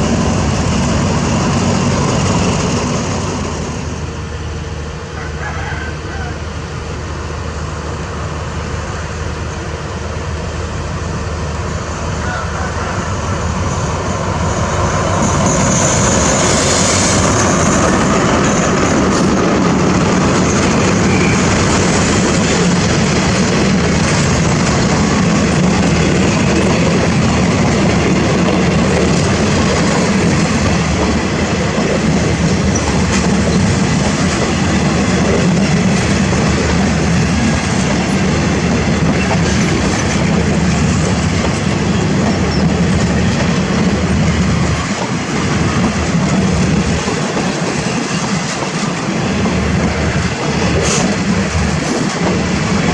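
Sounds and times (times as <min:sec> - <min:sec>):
train wheels clattering on rails: 0:12.2 - 0:52.9.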